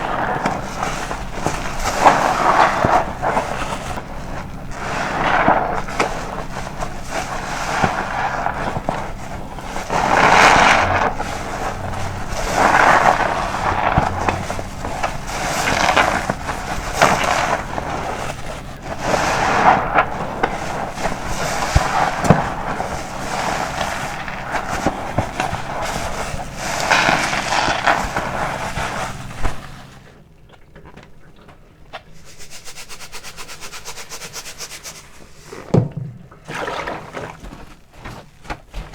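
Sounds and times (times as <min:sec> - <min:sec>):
wet sponge squelching: 0:00.0 - 0:30.1, 0:32.0 - 0:35.7, 0:36.4 - 0:38.9
fine fast crackle: 0:00.0 - 0:30.2.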